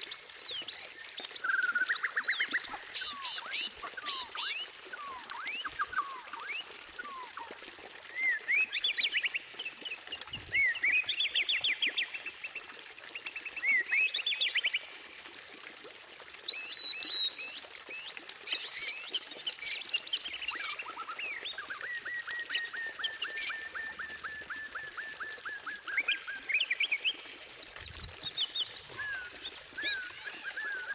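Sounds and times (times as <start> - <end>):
bird singing whistled phrases: 8.1 - 9.3, 16.5 - 19.8, 20.5 - 27.2, 28.0 - 30.9.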